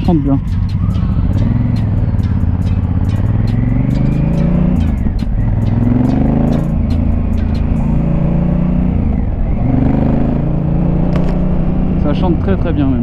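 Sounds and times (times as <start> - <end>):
person talking: 0.0 - 0.5
motorcycle engine accelerating: 0.0 - 13.0.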